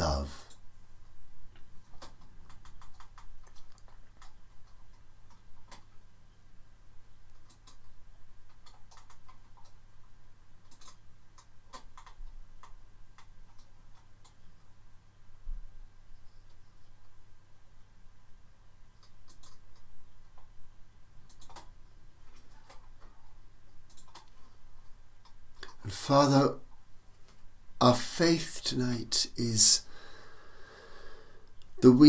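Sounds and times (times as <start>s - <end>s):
faint clicks and ticks: 0.0s - 6.5s, 7.1s - 14.8s, 18.7s - 27.5s, 31.4s - 32.0s
low electrical hum: 0.0s - 32.0s.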